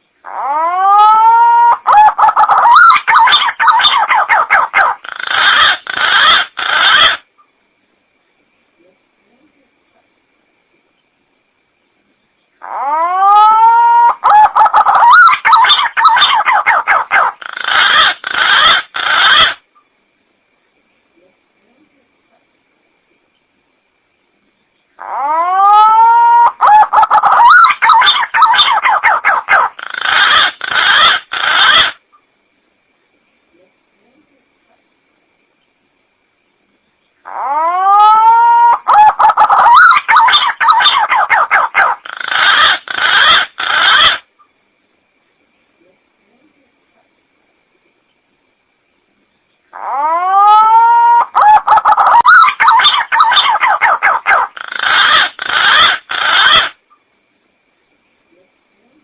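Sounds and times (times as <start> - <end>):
pigeon calling: 0.2 - 7.2, 12.6 - 19.6, 25.0 - 32.0, 37.2 - 44.3, 49.7 - 56.8
pigeon whistling calls: 37.4 - 44.2, 49.8 - 56.8.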